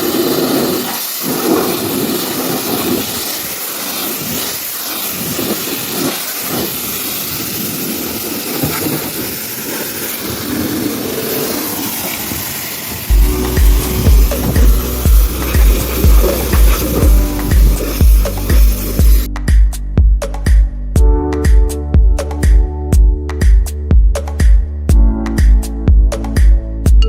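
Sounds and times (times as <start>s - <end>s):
high-pressure water spray hiss: 0.0s - 19.3s
music with strong beat: 13.1s - 27.0s.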